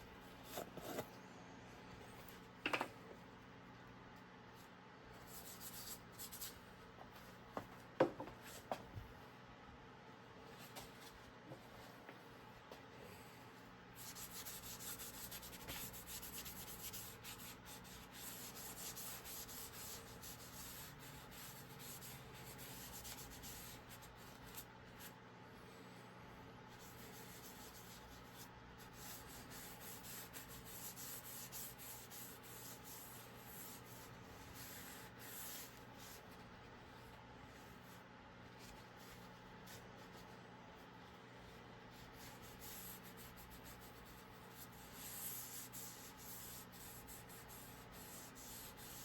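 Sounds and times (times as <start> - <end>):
hand sanding scratchy strokes: 14.0 - 24.5, 41.9 - 49.0.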